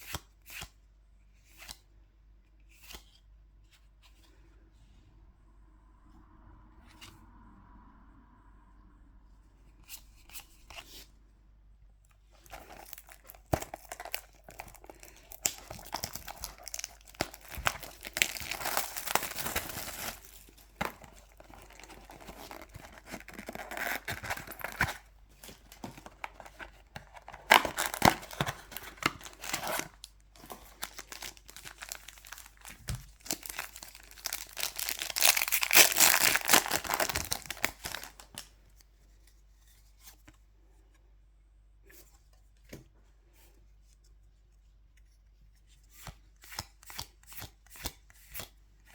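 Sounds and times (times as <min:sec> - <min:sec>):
foil wrappers tearing and crinkling: 0:12.4 - 0:38.5.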